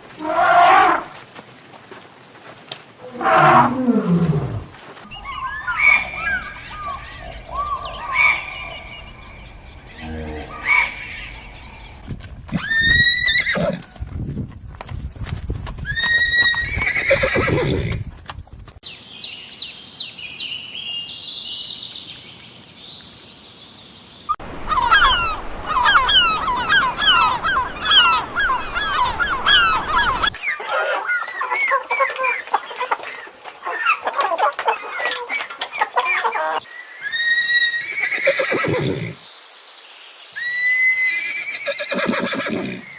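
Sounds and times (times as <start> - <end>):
horse neighing: 3.0 - 7.0, 12.5 - 13.9, 15.9 - 18.0, 36.4 - 39.2, 40.5 - 42.9.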